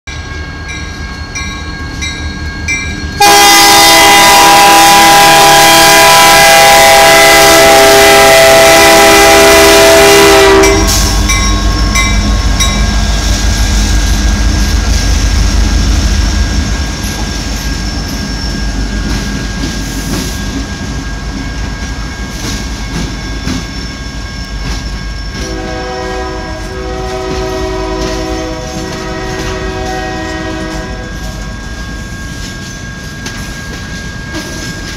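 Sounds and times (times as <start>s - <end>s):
crossing bell ringing: 0.1s - 34.9s
locomotive horn: 3.2s - 11.2s, 25.4s - 31.4s.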